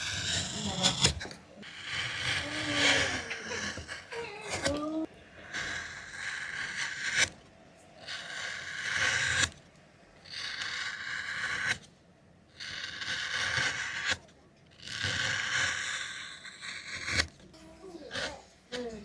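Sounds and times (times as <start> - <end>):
scraping strokes: 0.0 - 9.6.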